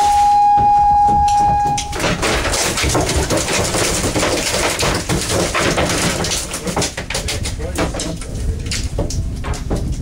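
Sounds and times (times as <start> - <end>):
single-pitched electronic beep: 0.0 - 2.0.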